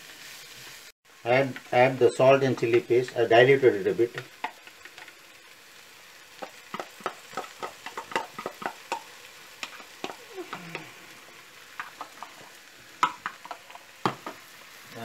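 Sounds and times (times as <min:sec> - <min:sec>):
vegetables frying in oil: 0:00.0 - 0:15.0.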